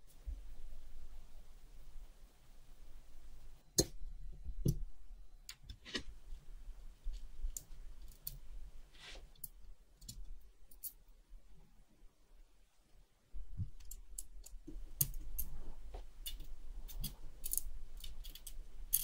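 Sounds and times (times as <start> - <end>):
faint low hum: 0.0 - 19.0
small metal parts clicking: 9.4 - 11.0, 13.7 - 15.5, 16.2 - 19.0.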